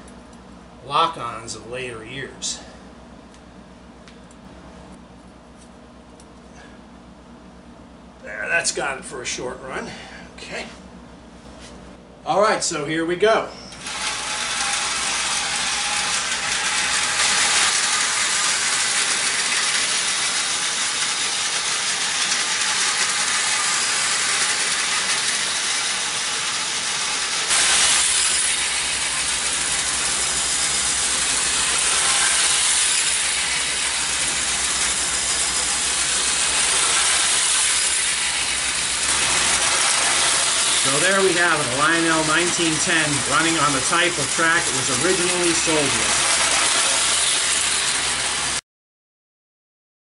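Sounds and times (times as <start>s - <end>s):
toy train motor whirring: 13.7s - 48.6s
toy train wheels rattling on rails: 13.8s - 48.6s.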